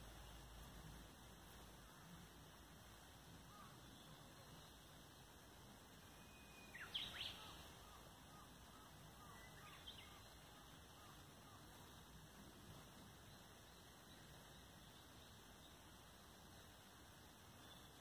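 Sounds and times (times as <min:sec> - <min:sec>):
birds calling: 0:06.2 - 0:11.8.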